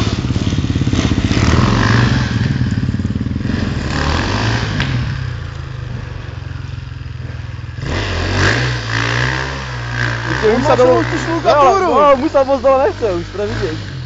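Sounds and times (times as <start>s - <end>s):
dirt bike engine: 0.0s - 14.0s.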